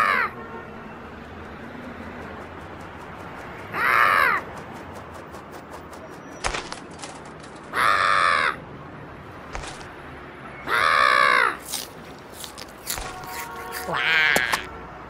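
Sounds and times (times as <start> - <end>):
harsh bird squawks: 0.0 - 0.4, 3.7 - 4.5, 10.6 - 11.9.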